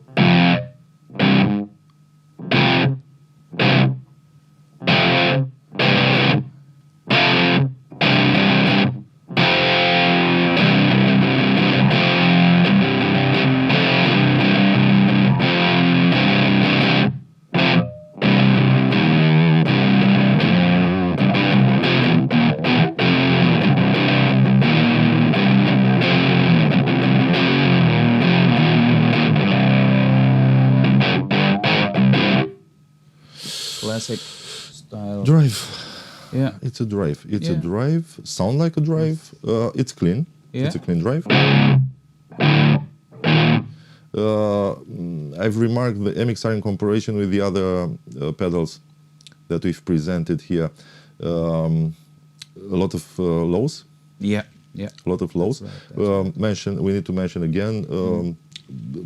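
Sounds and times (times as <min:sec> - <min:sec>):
overdriven electric guitar: 0:00.0 - 0:01.7, 0:02.4 - 0:04.0, 0:04.8 - 0:32.6, 0:41.3 - 0:44.0.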